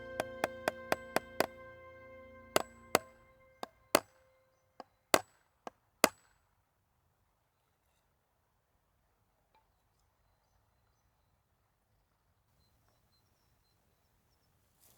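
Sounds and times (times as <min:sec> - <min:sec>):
sharp knocks: 0:00.0 - 0:01.6, 0:02.5 - 0:04.1
background music: 0:00.0 - 0:04.5.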